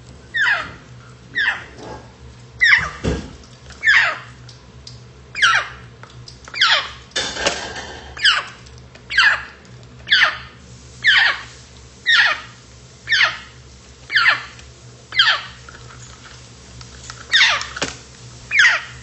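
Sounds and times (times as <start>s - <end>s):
parrot sharp calls: 0.3s - 1.8s, 2.6s - 3.0s, 3.8s - 4.4s, 5.3s - 5.9s, 6.5s - 7.0s, 8.1s - 15.6s, 17.3s - 17.8s, 18.5s - 19.0s.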